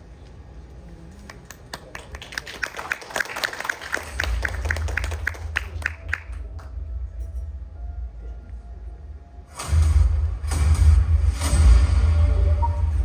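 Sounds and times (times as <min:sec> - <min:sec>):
audience applauding: 0:01.3 - 0:06.8
deep bass music: 0:04.3 - 0:13.0.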